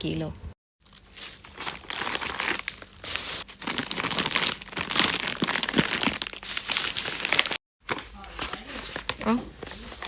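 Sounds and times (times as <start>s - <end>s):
plastic bags crinkling: 0.8s - 10.0s.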